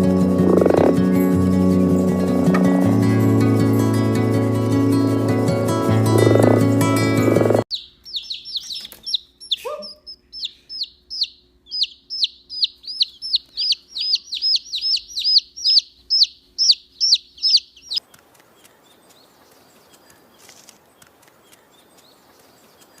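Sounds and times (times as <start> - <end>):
high downward chirping calls: 7.4 - 18.0.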